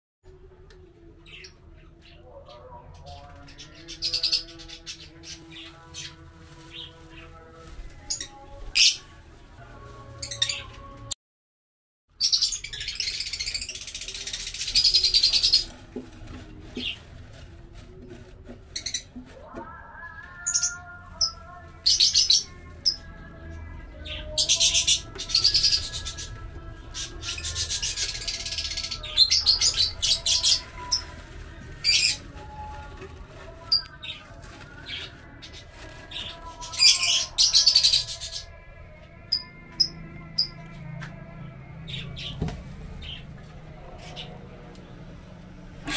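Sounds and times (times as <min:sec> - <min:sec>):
lovebirds chirping: 0:24.0 - 0:31.2.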